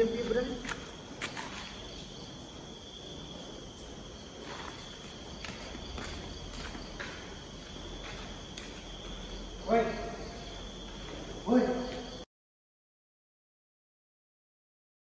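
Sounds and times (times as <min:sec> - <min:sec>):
crickets trilling: 0:00.0 - 0:12.3
soft footsteps: 0:00.5 - 0:12.2.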